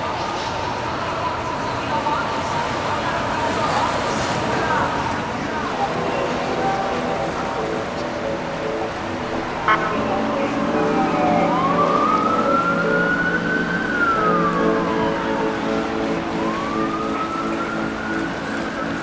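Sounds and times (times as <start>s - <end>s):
emergency vehicle siren wailing: 5.7s - 19.0s
steady low drone: 7.1s - 18.1s.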